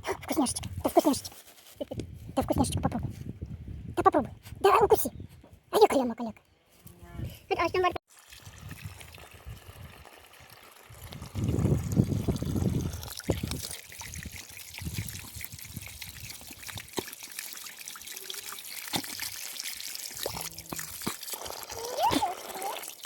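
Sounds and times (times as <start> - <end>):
water trickling: 8.1 - 23.0.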